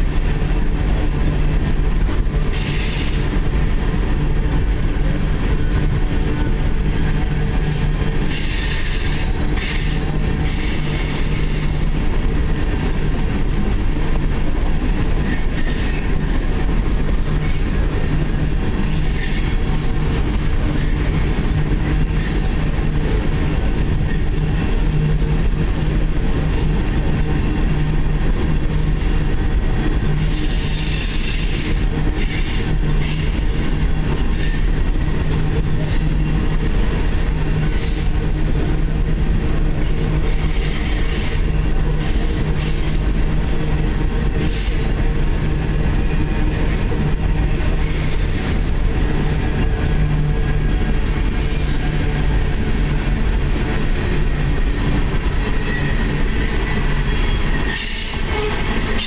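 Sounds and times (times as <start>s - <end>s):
freight train wheels rumbling: 0.0s - 59.0s
wheel squeal: 55.4s - 59.0s.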